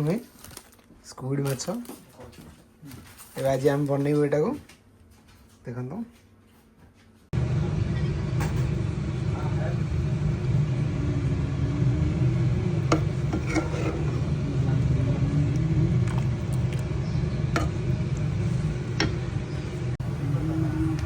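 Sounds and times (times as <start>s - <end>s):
low rumble with wavering hum: 7.4s - 21.0s.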